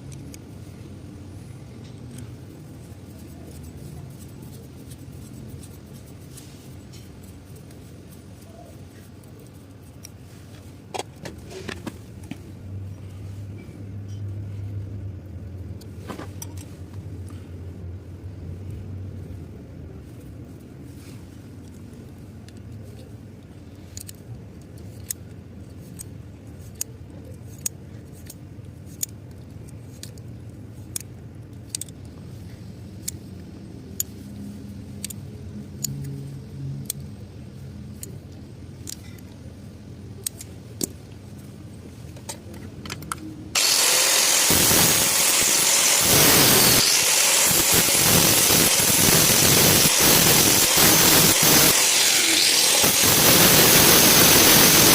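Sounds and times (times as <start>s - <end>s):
metallic clicks of hand tools: 23.9s - 25.3s, 27.5s - 30.2s, 30.9s - 32.1s, 35.0s - 36.2s, 37.9s - 39.4s, 40.2s - 41.0s.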